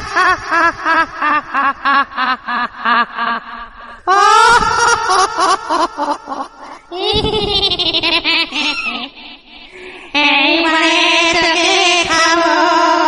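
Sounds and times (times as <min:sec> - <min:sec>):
high-pitched cackling laugh: 0:04.3 - 0:09.2.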